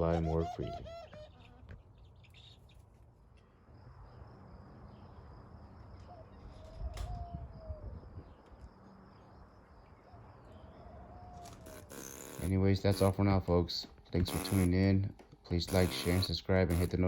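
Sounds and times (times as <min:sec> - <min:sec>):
dove cooing: 0:00.0 - 0:01.6, 0:10.1 - 0:12.4
high insect-like trill: 0:11.6 - 0:13.2, 0:15.6 - 0:17.0.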